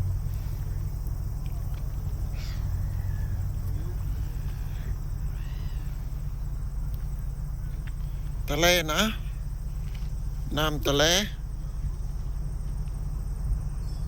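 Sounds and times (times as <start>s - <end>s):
bird calls: 0.0s - 14.0s
low outdoor rumble: 0.0s - 14.0s.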